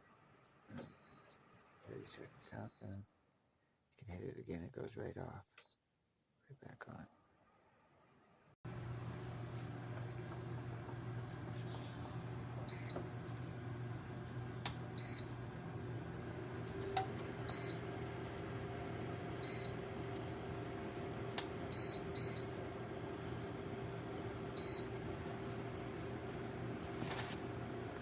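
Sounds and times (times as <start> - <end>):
heater fan humming: 8.7 - 28.0.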